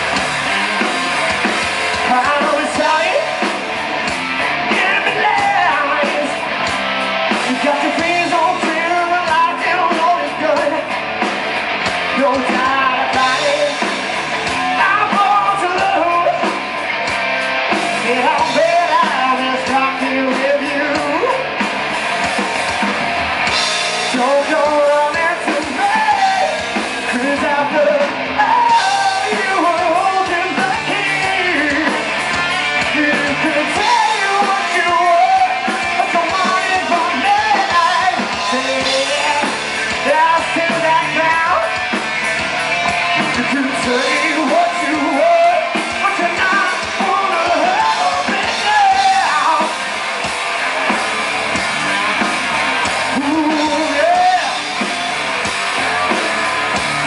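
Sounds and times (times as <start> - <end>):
rock band playing: 0.0 - 57.0
man singing hard: 1.9 - 3.5, 4.6 - 6.4, 7.4 - 10.9, 12.1 - 16.6, 18.0 - 21.5, 24.0 - 41.9, 43.1 - 49.9, 52.6 - 54.8.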